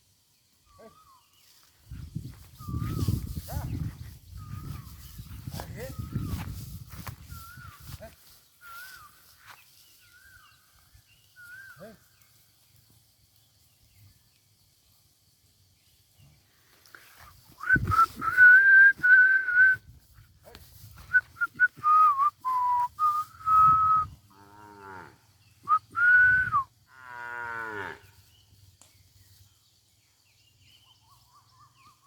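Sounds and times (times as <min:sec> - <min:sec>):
person whistling: 0:17.6 - 0:19.8, 0:21.0 - 0:24.1, 0:25.7 - 0:26.7.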